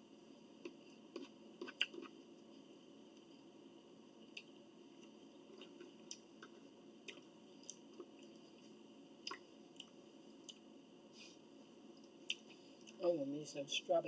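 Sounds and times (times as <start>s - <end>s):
low background hum: 0.0s - 14.0s
people chewing with smacks: 0.6s - 3.5s, 4.2s - 10.7s, 11.9s - 13.0s.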